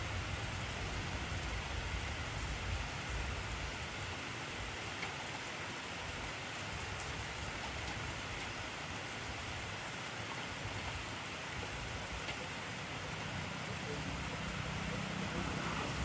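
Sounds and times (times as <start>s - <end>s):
heavy rain hissing: 5.7s - 16.0s.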